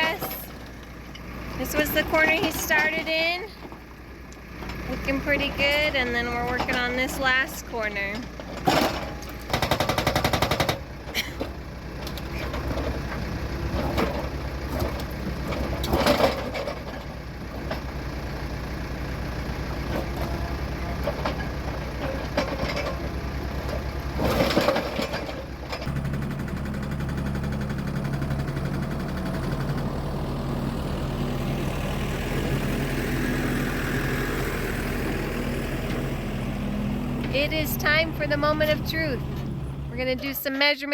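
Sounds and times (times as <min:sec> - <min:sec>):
excavator engine running: 0:00.0 - 0:40.9
hydraulic breaker hammering rock: 0:09.5 - 0:10.8.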